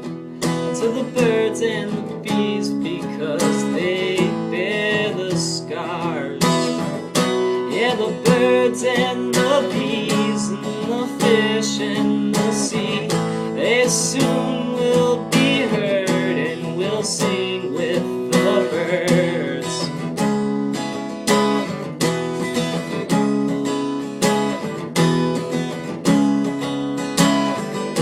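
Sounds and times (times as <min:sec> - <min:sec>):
acoustic guitar strumming: 0:00.0 - 0:28.0
wavering wordless vocal: 0:00.6 - 0:20.0.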